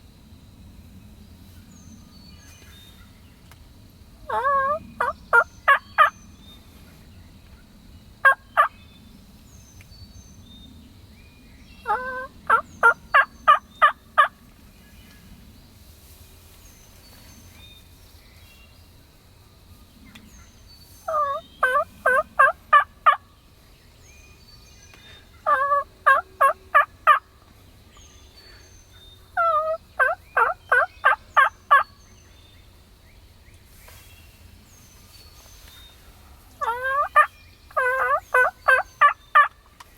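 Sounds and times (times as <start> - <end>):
faint songbird chirps: 0.6 - 39.9
turkey yelping: 4.3 - 6.1, 11.9 - 14.3, 21.1 - 23.2, 25.4 - 27.2, 29.4 - 31.8, 36.6 - 39.6.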